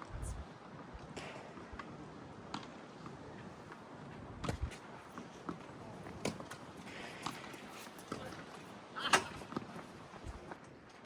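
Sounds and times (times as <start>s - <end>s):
tennis ball strikes and bounces: 4.4s - 4.8s.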